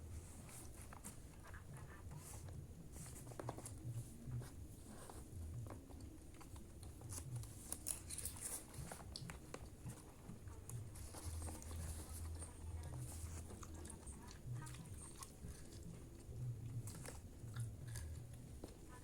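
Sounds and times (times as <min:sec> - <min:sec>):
chewing: 0:04.9 - 0:19.0.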